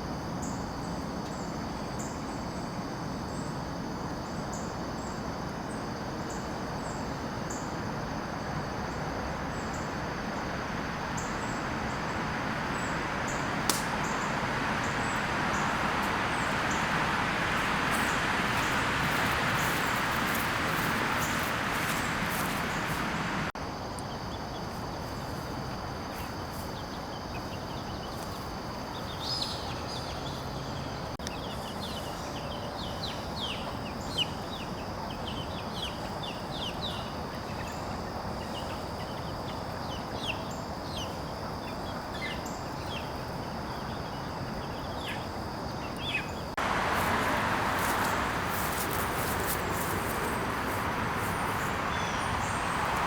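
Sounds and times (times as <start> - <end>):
steady high hum: 8.3 - 23.6
even hiss: 10.4 - 23.6, 46.6 - 53.0
birds chirping: 11.1 - 23.5, 46.0 - 53.0.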